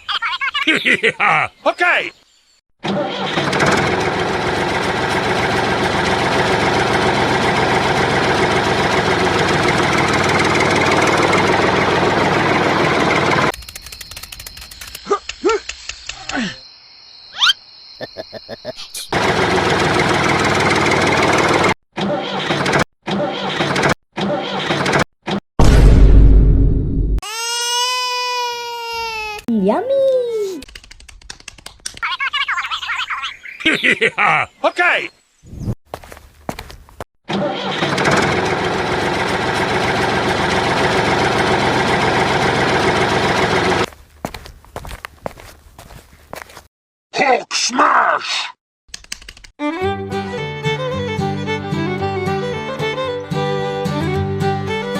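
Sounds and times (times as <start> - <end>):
engine cranking with clicks: 3.1 - 15.0, 37.6 - 43.9
engine running steadily: 3.2 - 13.6, 19.2 - 21.7, 37.6 - 43.9.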